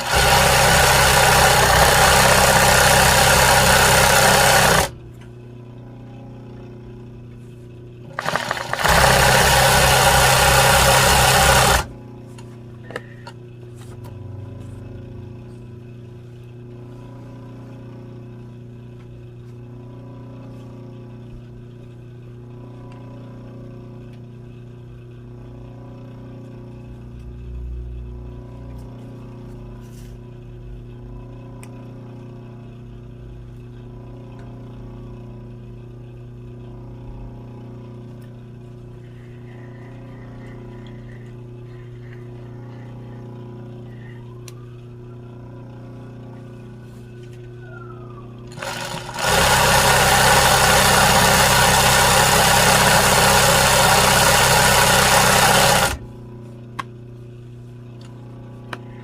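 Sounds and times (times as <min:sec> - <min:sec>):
sewing machine stitching: 0:00.0 - 0:05.0, 0:08.1 - 0:11.9, 0:48.5 - 0:56.0
steady motor hum: 0:00.0 - 0:59.0.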